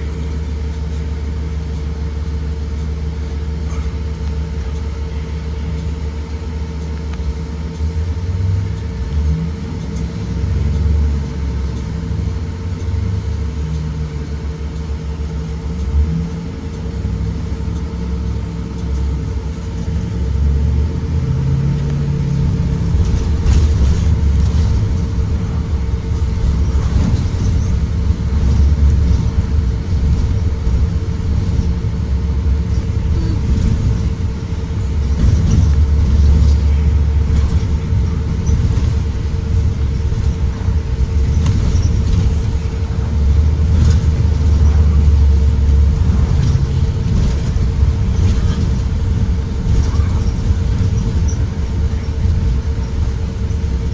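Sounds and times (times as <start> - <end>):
bus engine and road rumble: 0.0 - 53.9
steady high whine: 0.0 - 53.9.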